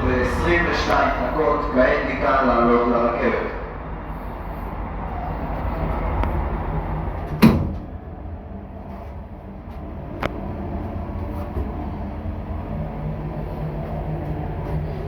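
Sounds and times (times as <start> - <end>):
elevator doors shutting: 0.0 - 4.5, 5.1 - 15.0
steady low rumble: 0.0 - 15.0.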